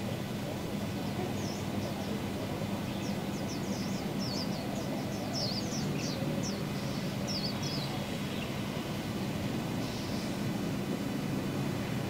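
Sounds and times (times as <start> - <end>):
steady low hum: 0.0 - 12.0
small birds chirping: 1.0 - 10.5.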